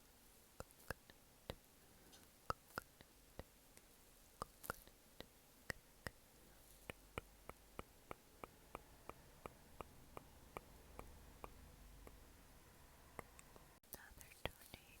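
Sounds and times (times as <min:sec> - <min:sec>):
room hiss: 0:00.0 - 0:15.0.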